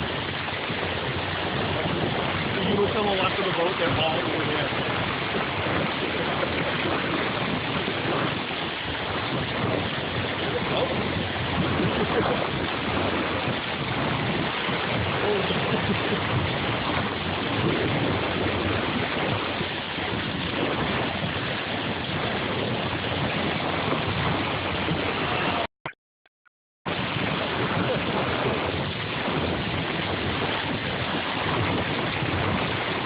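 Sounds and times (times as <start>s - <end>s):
water rushing along boat hull: 0.0s - 25.7s, 26.9s - 33.0s.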